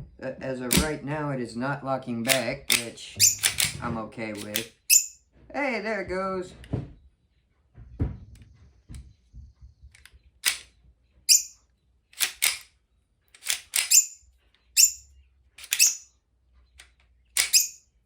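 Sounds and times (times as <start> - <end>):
pistol slide clacks: 2.2 - 3.8, 4.4 - 4.8, 10.4 - 10.7, 12.2 - 12.7, 13.3 - 14.2, 15.6 - 16.0, 17.4 - 17.8.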